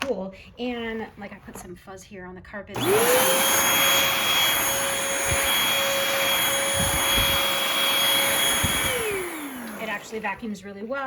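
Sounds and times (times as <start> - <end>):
motor spinning down: 2.8 - 10.6
vacuum cleaner motor whine: 2.8 - 10.8.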